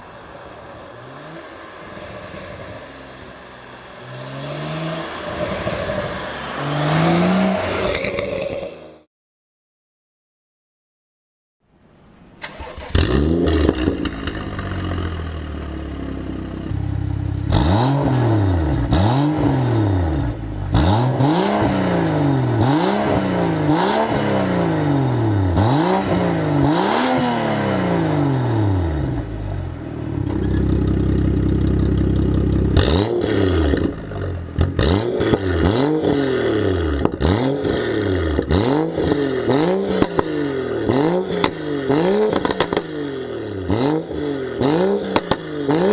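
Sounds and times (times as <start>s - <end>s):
car engine starting and idling: 12.2s - 22.8s, 27.5s - 40.2s
engine revving in blips: 30.2s - 45.9s
exhaust pops: 37.0s - 37.2s, 42.3s - 42.9s.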